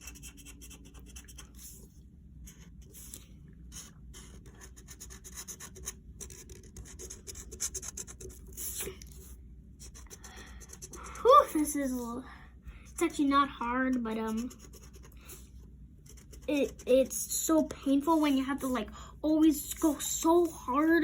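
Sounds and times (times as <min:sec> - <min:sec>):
pencil scribbling on paper: 0:00.0 - 0:01.8, 0:02.5 - 0:08.8, 0:09.8 - 0:11.2, 0:13.0 - 0:17.2.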